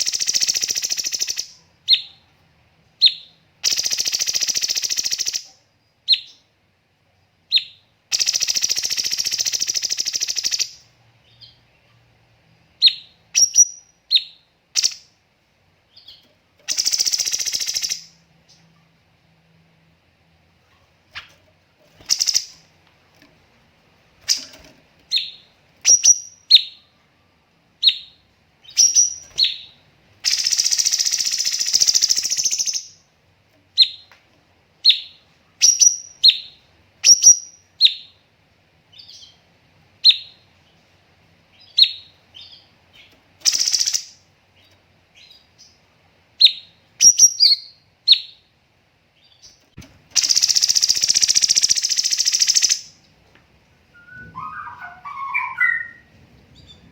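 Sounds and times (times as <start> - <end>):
bird whistling high notes: 54.0 - 56.1.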